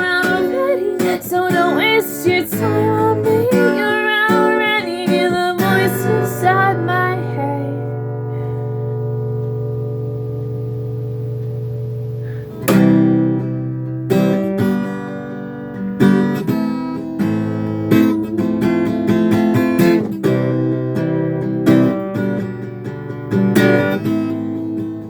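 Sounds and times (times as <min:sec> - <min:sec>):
acoustic guitar chords strummed: 0:00.0 - 0:25.0.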